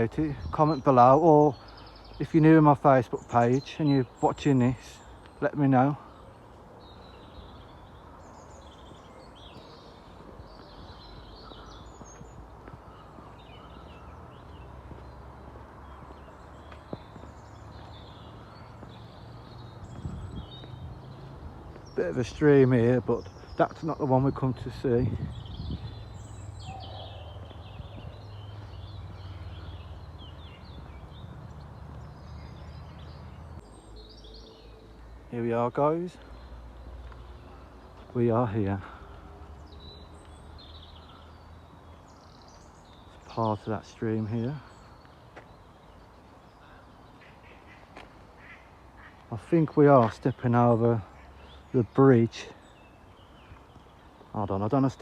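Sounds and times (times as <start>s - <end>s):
birds chirping and singing: 0.0s - 55.0s
wind rumble on microphone: 19.6s - 21.6s, 24.8s - 31.3s.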